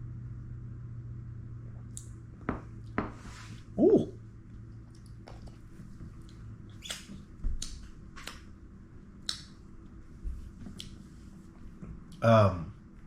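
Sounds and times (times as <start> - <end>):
low electrical hum: 0.0 - 13.0
wet lip and tongue clicks: 4.8 - 5.5, 6.2 - 8.4, 9.2 - 9.6.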